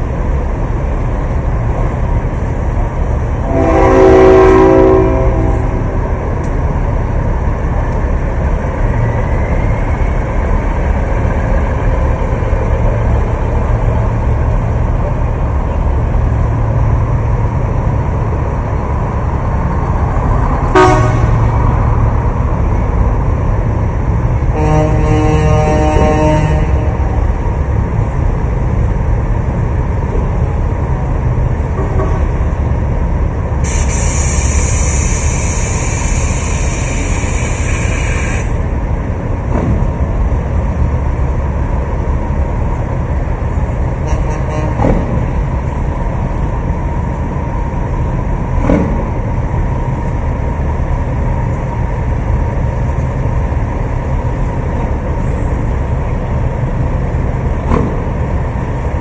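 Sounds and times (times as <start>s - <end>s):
truck engines rumbling: 0.0s - 59.0s
air hissing: 33.6s - 38.6s.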